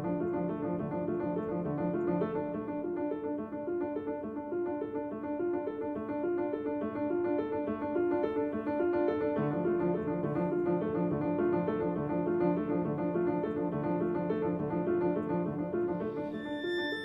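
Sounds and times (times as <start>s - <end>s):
piano repeated notes: 0.0s - 17.0s.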